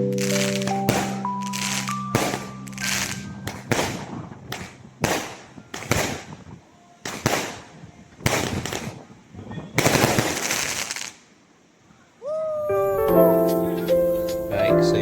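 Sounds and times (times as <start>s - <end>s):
sharp bangs with echo: 0.3s - 6.4s.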